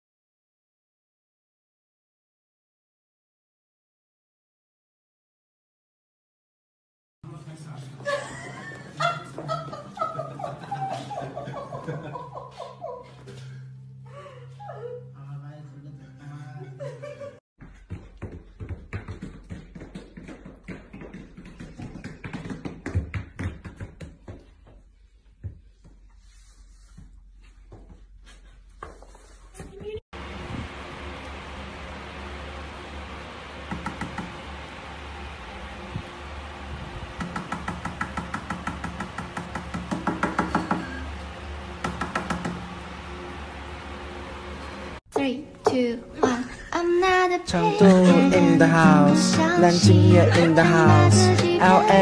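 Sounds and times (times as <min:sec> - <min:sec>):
booted dog feet tapping on floor: 0:17.6 - 0:26.1
low steady hum: 0:30.2 - 0:37.4.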